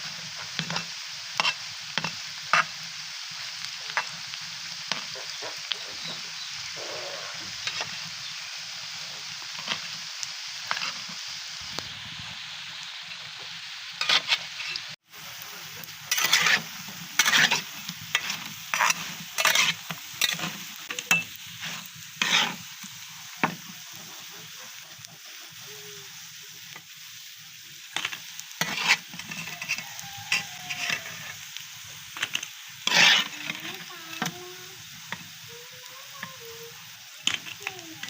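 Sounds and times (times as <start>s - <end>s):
food sizzling in oil: 0.0s - 38.0s
spatula scraping pan: 0.3s - 2.7s, 14.0s - 25.6s, 28.0s - 31.4s, 32.1s - 35.3s, 37.2s - 38.0s.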